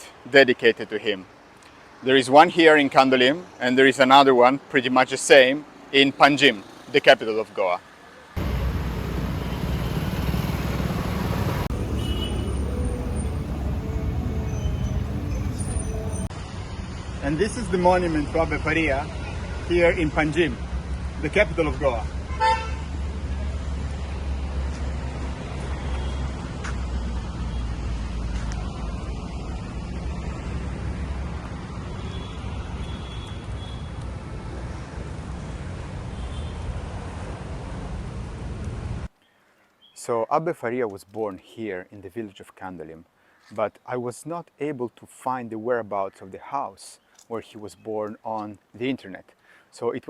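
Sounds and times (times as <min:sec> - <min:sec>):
street traffic: 0:00.0 - 0:39.2
vehicle engine rumble: 0:08.4 - 0:16.7.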